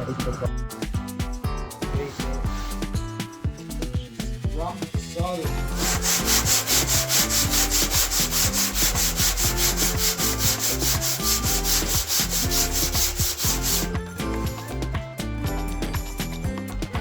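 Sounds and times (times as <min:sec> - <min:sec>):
sanding block rubbing on metal panel: 0:04.7 - 0:14.0.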